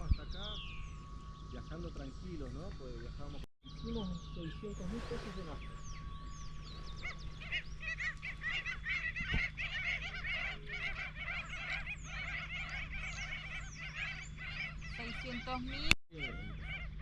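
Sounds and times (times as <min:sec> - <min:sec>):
birds honking: 0:00.0 - 0:17.0
high falling bird whistles: 0:04.4 - 0:14.2.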